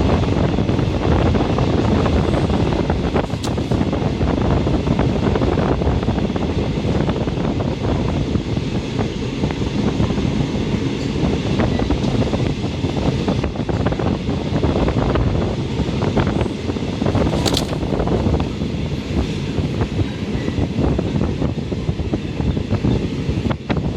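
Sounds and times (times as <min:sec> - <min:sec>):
train wheels rumbling on track: 0:00.0 - 0:23.9
wind noise: 0:00.0 - 0:23.9
clicks knocks and rattles: 0:17.4 - 0:17.8.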